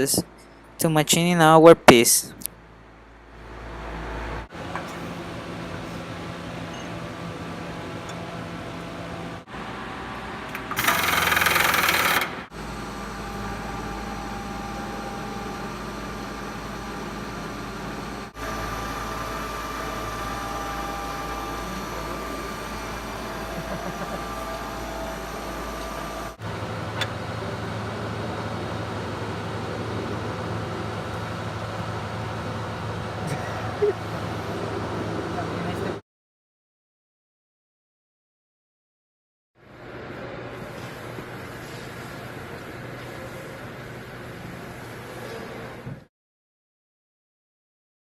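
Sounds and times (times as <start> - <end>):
milling machine humming: 3.4 - 35.6.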